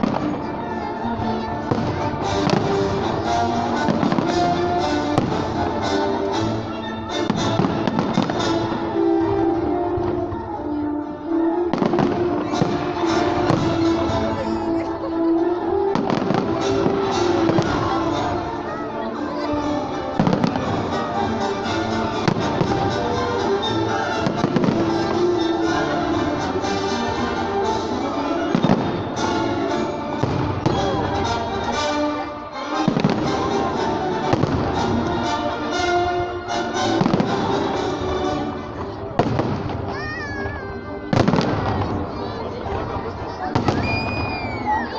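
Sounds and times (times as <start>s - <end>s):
fireworks bursting: 0.0s - 11.0s, 11.7s - 35.8s, 36.5s - 44.9s
music with sustained notes: 0.0s - 44.9s.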